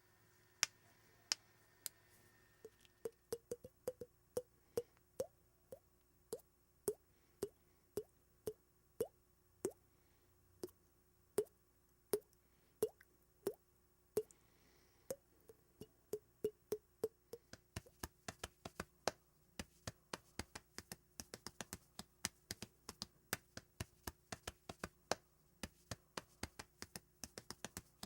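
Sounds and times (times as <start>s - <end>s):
sharp dry taps: 3.3s - 4.1s, 16.7s - 28.0s.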